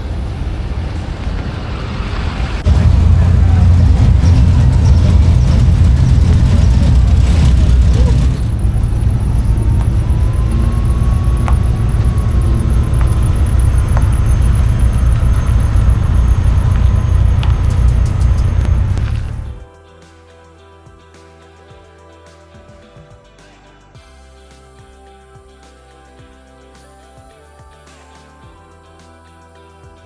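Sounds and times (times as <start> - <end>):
engine low rumble: 0.0 - 19.6.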